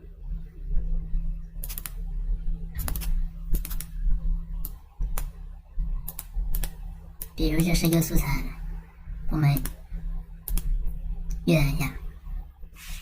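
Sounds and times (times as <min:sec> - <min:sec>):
steady low hum: 0:00.0 - 0:13.0
computer keyboard clicks: 0:01.6 - 0:02.0, 0:02.8 - 0:03.9, 0:04.6 - 0:05.3, 0:06.1 - 0:07.8, 0:10.5 - 0:10.8.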